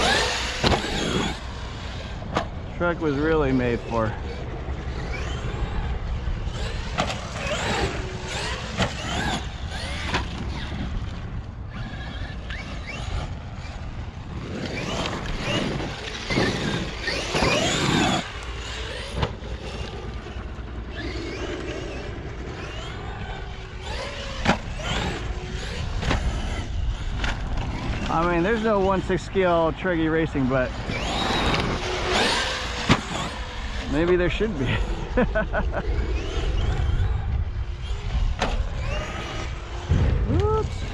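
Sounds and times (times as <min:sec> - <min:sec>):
electric motor whining: 0:00.0 - 0:40.9
low rumble: 0:34.6 - 0:40.9.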